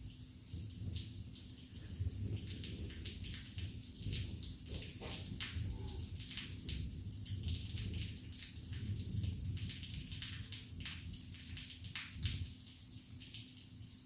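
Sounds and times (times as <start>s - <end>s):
rain drops splashing close by: 0.0s - 14.0s
heavy rain hissing: 1.6s - 8.0s.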